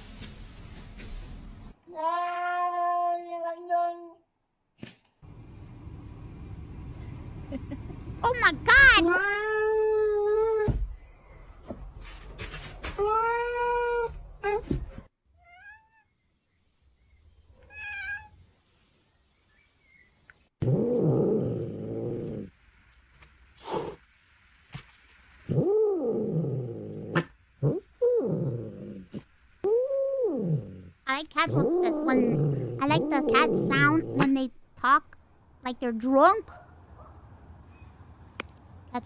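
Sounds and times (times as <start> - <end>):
cats meowing and yowling: 2.0 - 3.3.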